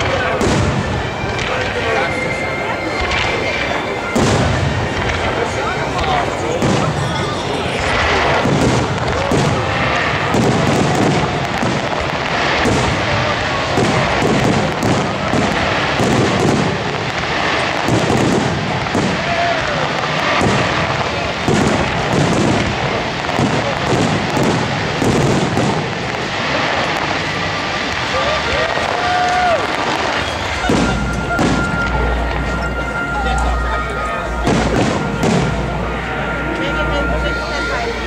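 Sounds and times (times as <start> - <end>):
fireworks bursting: 0.0 - 38.0.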